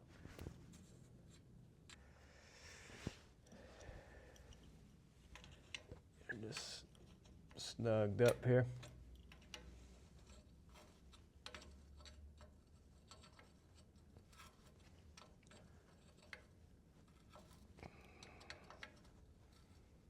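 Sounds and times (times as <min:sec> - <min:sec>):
faint scrape: 0:02.4 - 0:03.3
hand tools clicking on metal: 0:05.3 - 0:16.6, 0:17.2 - 0:19.2.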